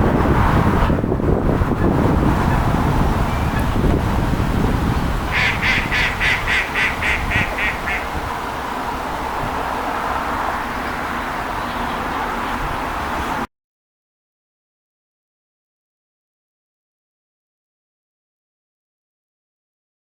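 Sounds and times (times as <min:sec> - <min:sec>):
outdoor background noise: 0:00.0 - 0:13.5
gull calling harsh notes: 0:05.3 - 0:08.3.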